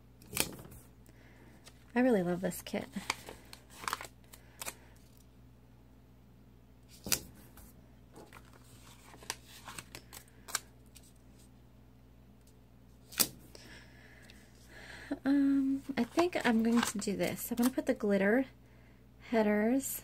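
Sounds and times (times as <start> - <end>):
faint low hum: 0.0 - 20.0
clicks and snips handling paper: 2.9 - 5.2, 8.2 - 11.2, 16.0 - 17.8.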